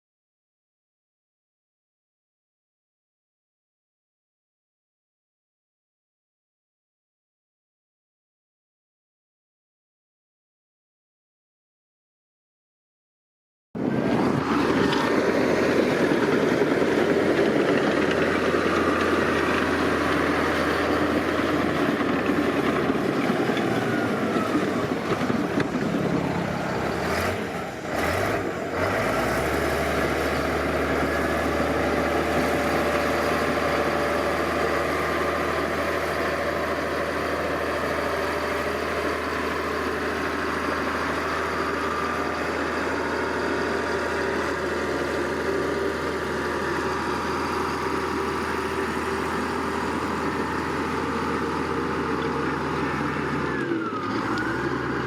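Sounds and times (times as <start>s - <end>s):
heavy machinery diesel engine: 13.8s - 55.0s.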